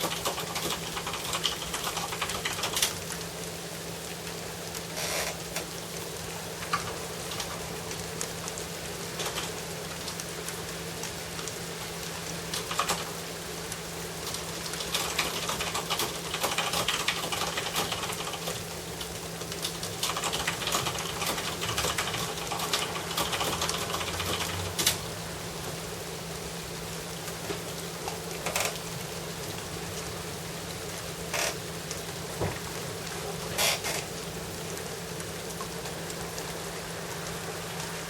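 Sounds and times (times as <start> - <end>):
rain on hard surface: 0.0 - 38.0.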